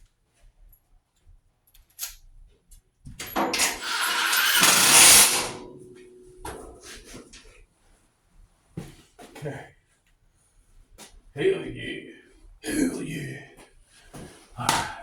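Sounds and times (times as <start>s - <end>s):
power drill running: 3.4s - 5.6s.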